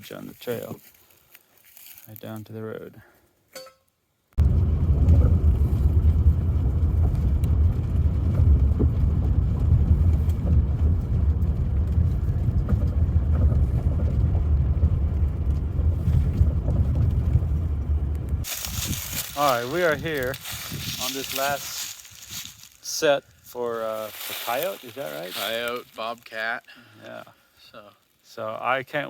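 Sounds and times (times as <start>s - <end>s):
vehicle engine and road noise: 4.4s - 22.4s.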